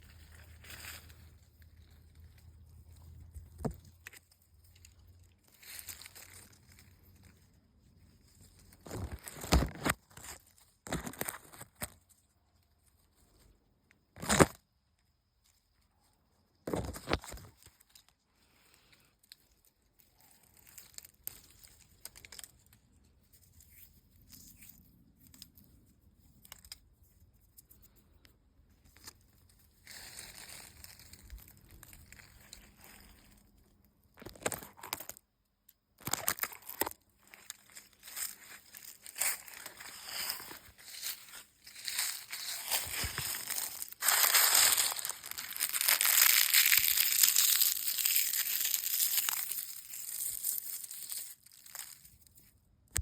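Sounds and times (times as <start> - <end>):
paint being peeled and scratched: 36.0 - 52.1.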